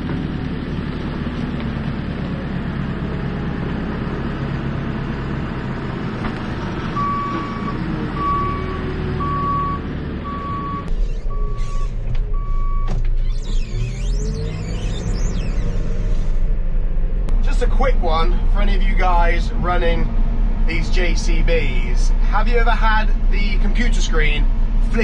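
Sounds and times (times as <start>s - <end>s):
engine rumble: 0.0s - 25.0s
reversing alarm beeping: 7.0s - 16.3s.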